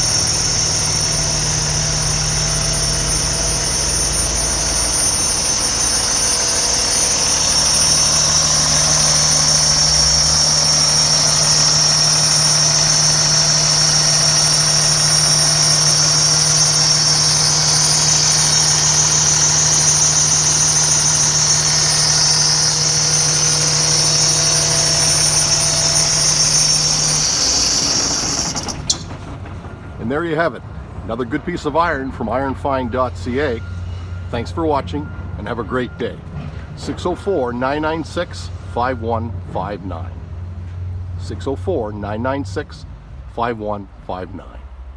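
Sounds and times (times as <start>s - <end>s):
high whine: 0.0s - 29.3s
diesel truck idling: 0.0s - 44.9s.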